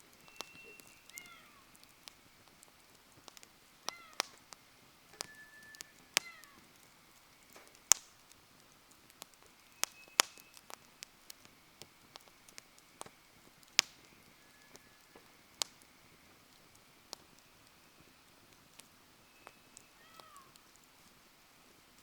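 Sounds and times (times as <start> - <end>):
faint whistling tones: 0.0 - 2.4, 3.9 - 7.8, 9.4 - 20.7
campfire crackling and popping: 0.0 - 22.0.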